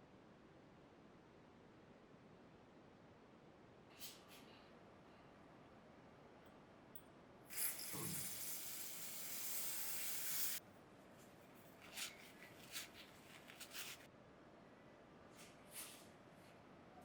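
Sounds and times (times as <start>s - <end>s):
spray hissing from a nozzle: 7.5s - 10.6s.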